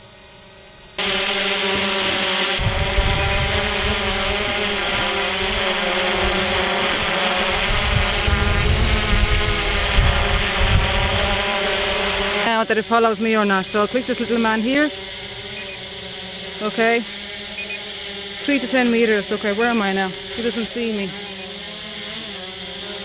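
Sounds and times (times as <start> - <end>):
quadcopter motors whining: 0.0 - 23.0
wind rumbling on microphone: 2.5 - 12.5.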